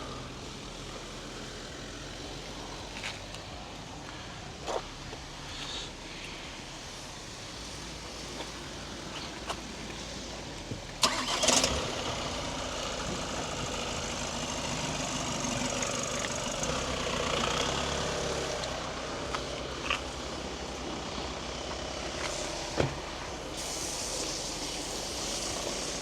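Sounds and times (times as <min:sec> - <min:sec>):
car engine starting and idling: 0:00.0 - 0:26.0.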